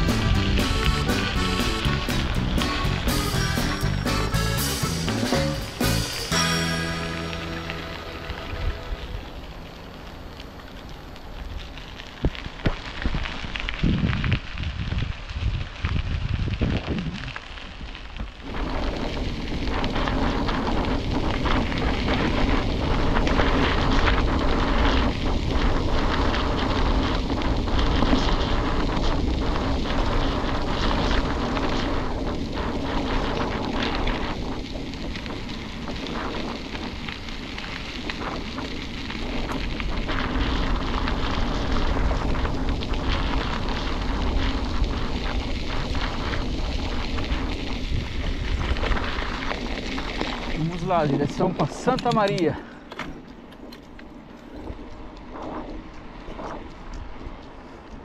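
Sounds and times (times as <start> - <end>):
wind buffeting microphone: 0.0 - 6.4, 7.2 - 58.0.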